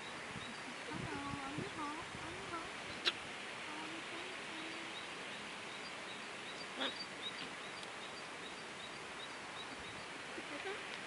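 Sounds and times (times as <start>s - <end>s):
outdoor background hiss: 0.0s - 11.0s
faint bird chirps: 4.2s - 10.6s.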